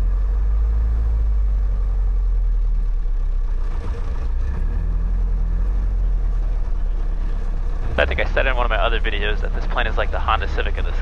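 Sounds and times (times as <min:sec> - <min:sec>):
airplane piston engine idling: 0:06.7 - 0:11.0.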